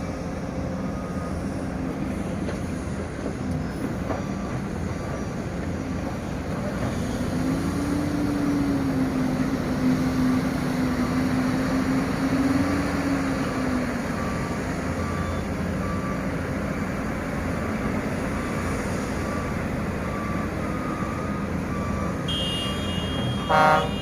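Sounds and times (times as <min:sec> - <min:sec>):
heavy diesel machinery running: 0:00.0 - 0:24.0
reversing alarm beeping: 0:00.4 - 0:02.4, 0:13.4 - 0:24.0.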